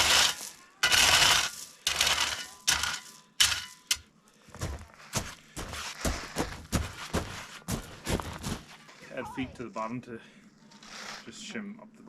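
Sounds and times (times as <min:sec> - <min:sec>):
clattering crashes: 0:00.0 - 0:04.1.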